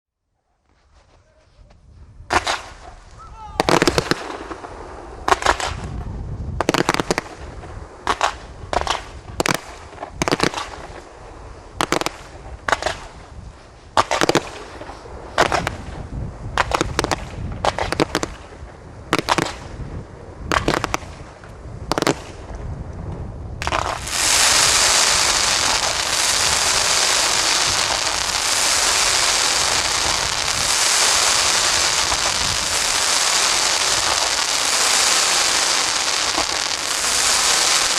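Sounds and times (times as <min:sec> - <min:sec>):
fireworks crackling: 0:02.3 - 0:22.6, 0:23.6 - 0:37.9
firework bursts: 0:03.6 - 0:05.9, 0:23.6 - 0:37.9.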